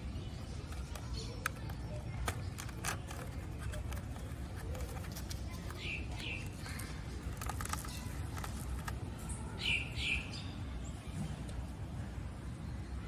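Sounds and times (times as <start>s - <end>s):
plastic box clicking open: 0.7s - 6.6s, 7.2s - 9.0s.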